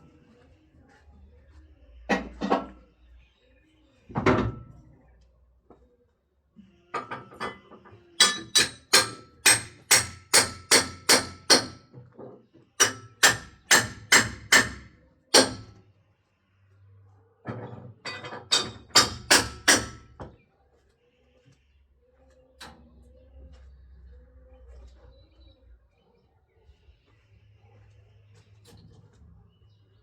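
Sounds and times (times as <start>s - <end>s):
sharp ringing knocks: 12.8s - 15.8s.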